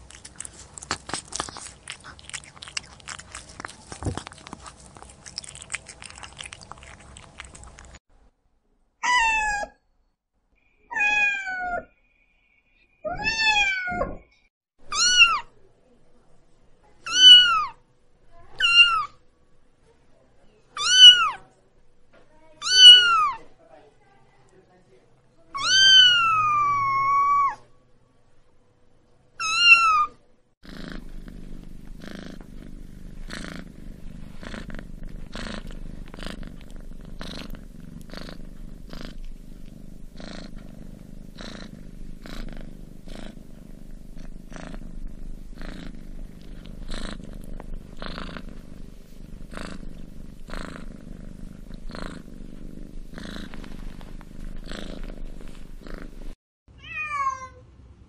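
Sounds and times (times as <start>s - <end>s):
cat purring: 0.0s - 8.0s, 30.6s - 56.4s
cat meowing: 9.0s - 9.8s, 10.9s - 11.9s, 13.1s - 14.2s, 14.9s - 15.5s, 17.1s - 17.8s, 18.6s - 19.2s, 20.8s - 21.4s, 22.6s - 23.4s, 25.6s - 27.6s, 29.4s - 30.2s, 56.8s - 57.6s.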